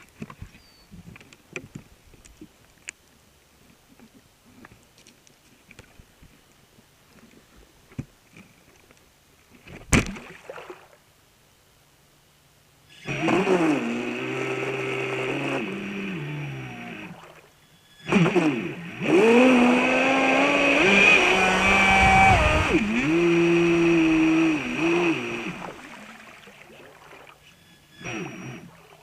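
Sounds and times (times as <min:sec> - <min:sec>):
electric boat motor whining: 0:12.9 - 0:29.0.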